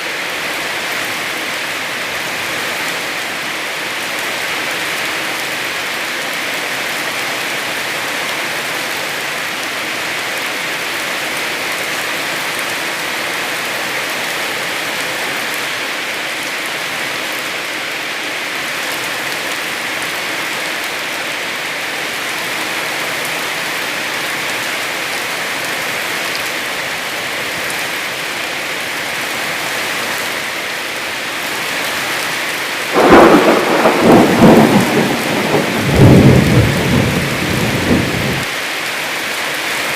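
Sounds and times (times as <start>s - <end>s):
heavy rain falling: 0.0s - 39.9s
crackling thunder clap: 32.9s - 38.5s.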